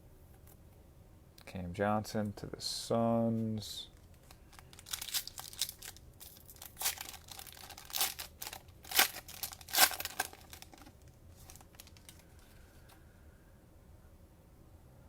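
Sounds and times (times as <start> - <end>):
cellophane wrapper crinkling: 4.0 - 12.5.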